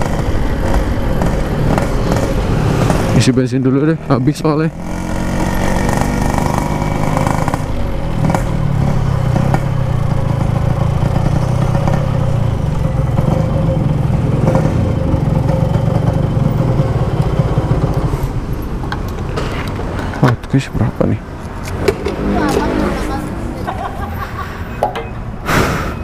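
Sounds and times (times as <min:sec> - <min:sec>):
two-stroke motorcycle engine running: 0:04.7 - 0:18.1.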